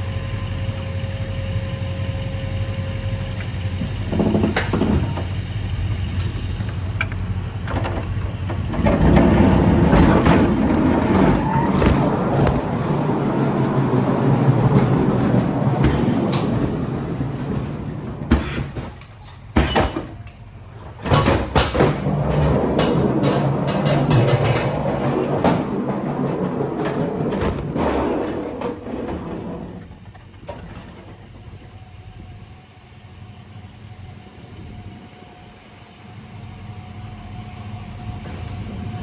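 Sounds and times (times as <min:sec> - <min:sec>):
knocks and clatters: 0:03.3 - 0:31.2.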